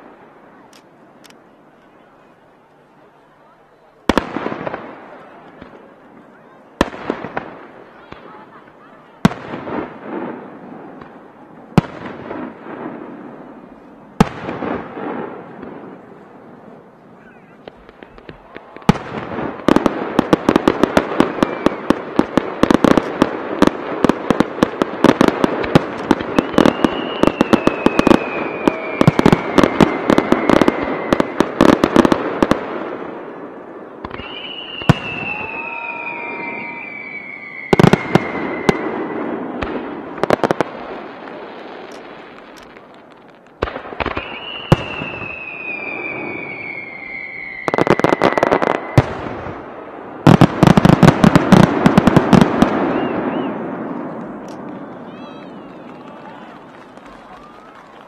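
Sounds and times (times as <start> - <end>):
firework bangs and crackle: 0.0 - 58.0
firework whistles sliding down: 26.3 - 31.4, 34.1 - 39.2, 44.1 - 49.1, 52.8 - 53.6.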